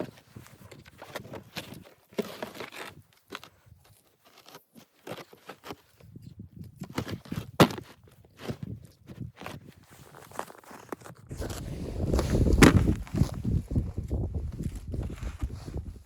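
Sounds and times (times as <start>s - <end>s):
footsteps crunching in snow: 9.5s - 16.0s.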